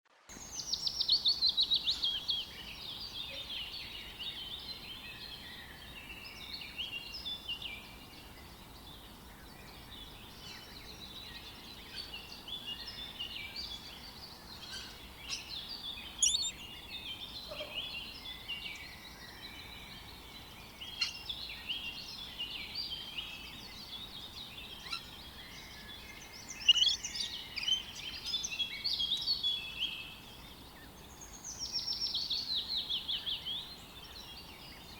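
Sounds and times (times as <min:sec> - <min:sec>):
birds chirping and whistling: 0:16.2 - 0:16.6, 0:24.9 - 0:29.1.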